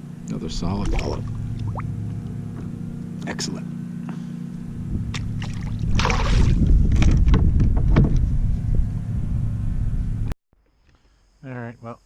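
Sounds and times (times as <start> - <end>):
steady low hum: 0.0 - 10.4
rush of water: 5.4 - 6.6.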